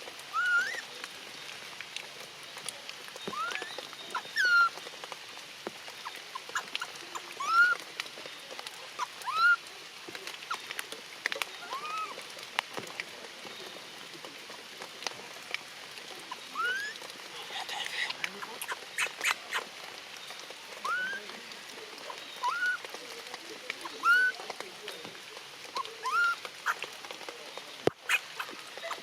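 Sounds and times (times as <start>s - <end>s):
rain patter: 0.0s - 29.0s
newborn animal squealing: 0.3s - 0.8s, 3.3s - 4.7s, 6.0s - 7.8s, 9.0s - 9.6s, 11.7s - 12.2s, 16.3s - 19.6s, 20.8s - 21.2s, 22.4s - 22.8s, 24.0s - 24.4s, 25.8s - 26.8s.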